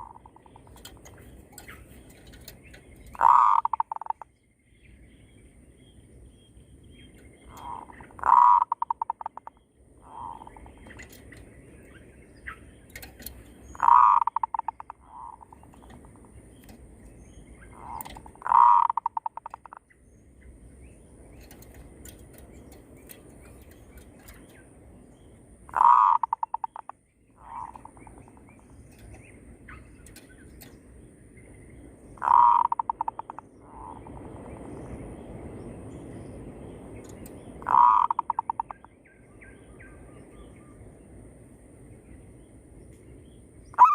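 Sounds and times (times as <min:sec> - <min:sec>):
doves cooing: 0:00.0 - 0:04.3, 0:07.4 - 0:11.4, 0:13.0 - 0:16.8, 0:17.6 - 0:19.8, 0:25.6 - 0:30.2, 0:32.2 - 0:34.4, 0:37.6 - 0:38.9.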